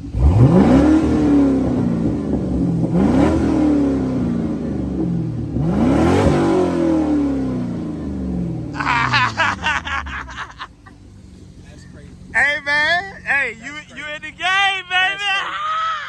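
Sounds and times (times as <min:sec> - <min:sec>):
car engine revving: 0:00.0 - 0:16.0
voices: 0:07.4 - 0:16.0.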